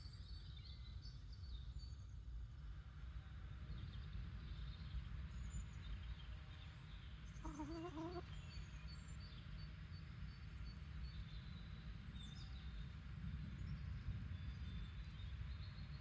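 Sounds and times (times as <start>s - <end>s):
low background rumble: 0.0s - 16.0s
small birds chirping: 5.7s - 12.8s
chicken call: 7.4s - 8.3s.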